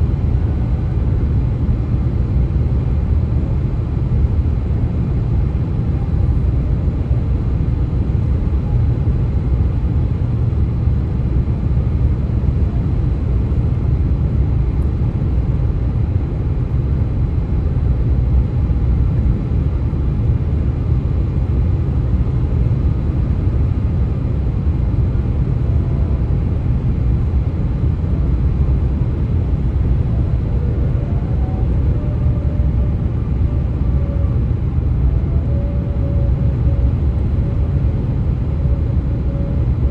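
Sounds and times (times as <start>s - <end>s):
highway traffic rumble: 0.0s - 39.9s
faint high tone: 30.0s - 37.7s.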